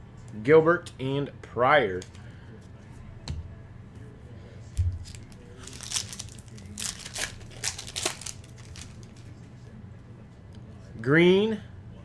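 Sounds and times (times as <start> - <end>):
foil wrapper tearing and crinkling: 4.9 - 9.3.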